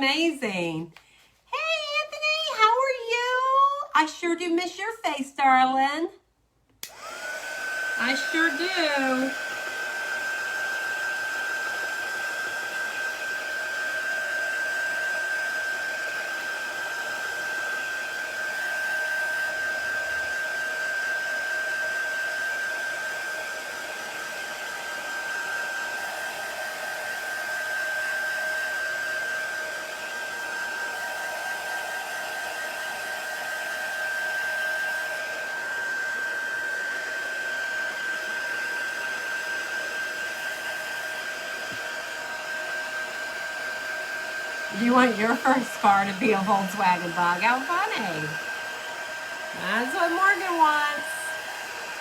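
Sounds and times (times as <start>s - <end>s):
hair dryer blowing: 0.0s - 3.5s, 6.8s - 52.0s.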